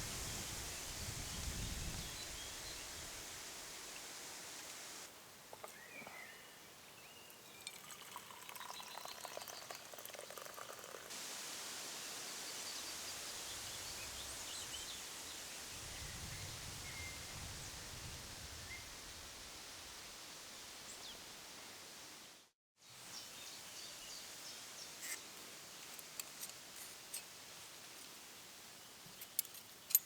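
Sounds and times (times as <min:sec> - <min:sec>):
liquid being poured: 0:07.6 - 0:11.1.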